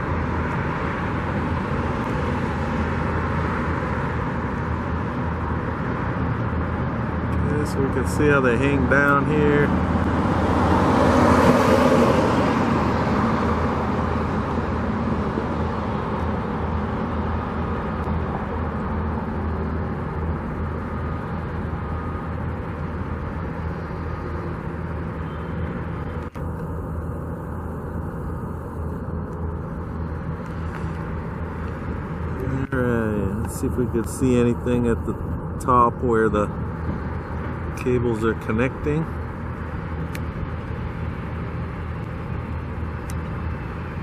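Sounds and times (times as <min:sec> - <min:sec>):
low rumble of engines: 0:00.0 - 0:44.0
vehicle passing close: 0:00.0 - 0:44.0.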